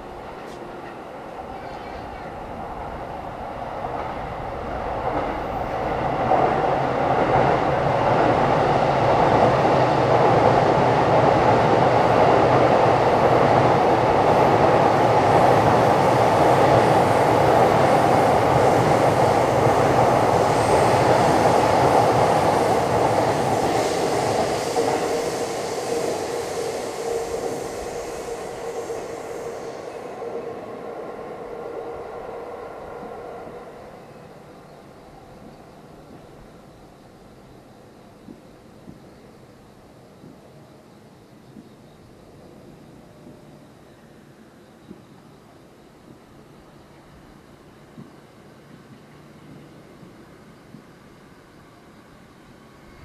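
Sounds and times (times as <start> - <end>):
train rumbling past: 0.0 - 53.0.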